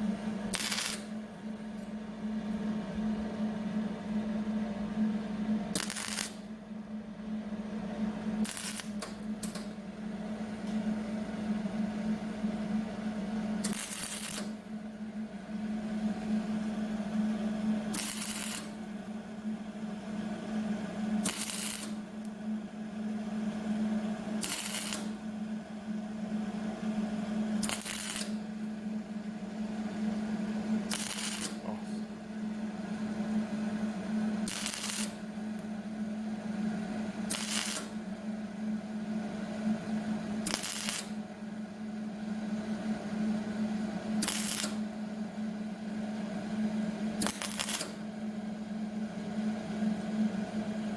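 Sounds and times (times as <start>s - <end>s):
steady hum: 0.0s - 50.9s
welding crackle: 0.5s - 1.3s, 5.7s - 6.6s, 8.4s - 9.7s, 13.6s - 14.8s, 17.9s - 19.0s, 21.2s - 22.4s, 24.4s - 25.3s, 27.6s - 28.7s, 30.8s - 31.8s, 34.4s - 35.7s, 37.3s - 38.1s, 40.4s - 41.2s, 44.2s - 44.9s, 47.2s - 48.0s.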